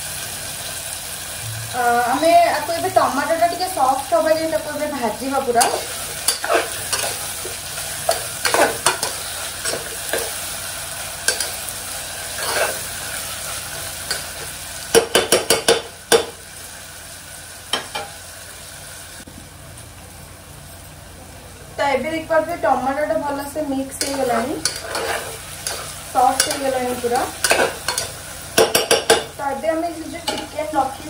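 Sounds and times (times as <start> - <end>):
food sizzling in pot: 0.0 - 31.0
spoon scraping pot: 5.6 - 7.3, 12.4 - 12.9, 24.0 - 26.8, 27.4 - 28.1.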